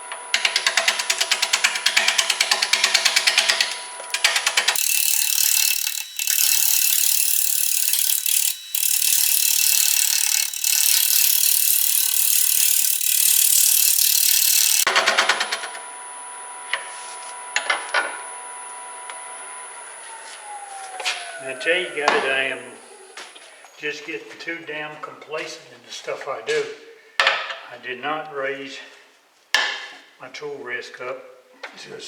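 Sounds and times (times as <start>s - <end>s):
lathe tool chattering: 2.8s - 14.9s
lathe running: 3.6s - 14.9s.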